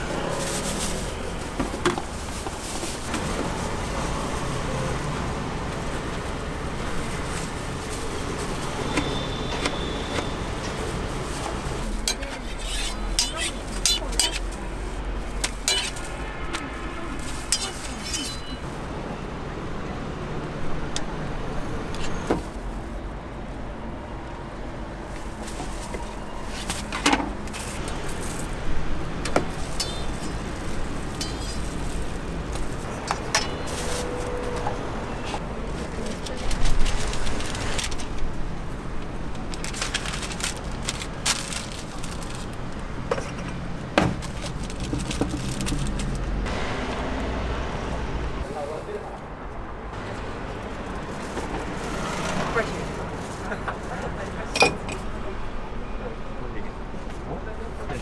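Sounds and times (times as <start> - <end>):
distant voices: 0.0 - 58.0
traffic: 0.0 - 58.0
metal utensils clinking: 5.9 - 19.0, 25.8 - 38.2, 54.4 - 55.2.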